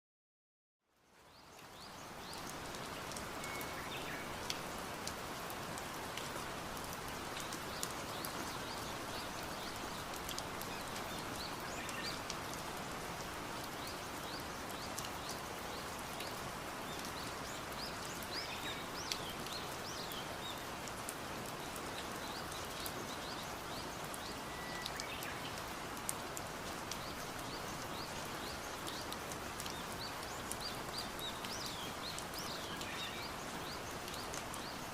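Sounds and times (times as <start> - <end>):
steady rain falling: 0.8 - 34.9
faint bird chirps: 23.2 - 25.6.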